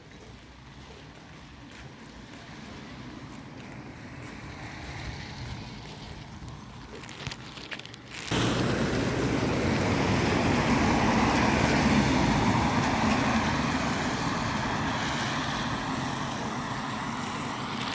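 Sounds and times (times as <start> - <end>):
vehicle engine noise: 0.3 - 17.9
tyres hissing on wet road: 8.2 - 17.9.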